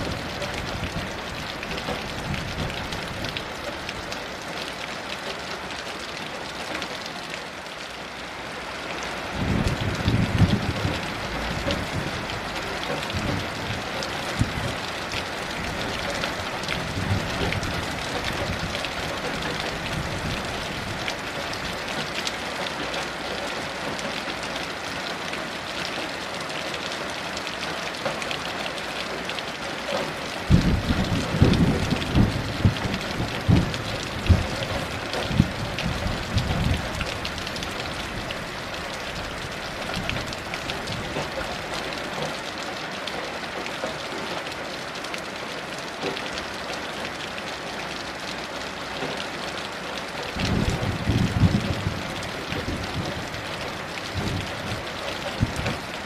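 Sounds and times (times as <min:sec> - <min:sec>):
heavy rain: 0:00.0 - 0:56.0
thunder rumbling: 0:09.4 - 0:14.8, 0:16.7 - 0:21.8, 0:30.5 - 0:38.3, 0:50.4 - 0:56.0.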